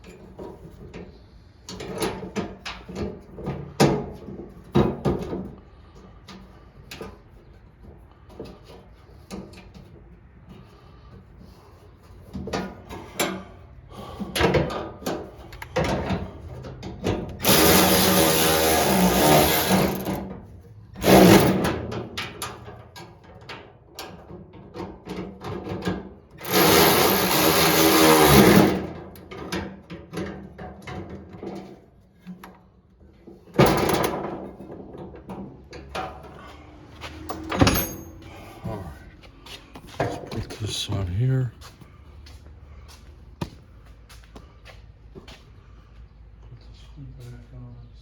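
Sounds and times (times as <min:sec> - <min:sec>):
knocks and clatter of parts: 0:01.7 - 0:10.7, 0:14.2 - 0:32.6
handheld power tool running: 0:17.4 - 0:20.2, 0:26.4 - 0:28.8.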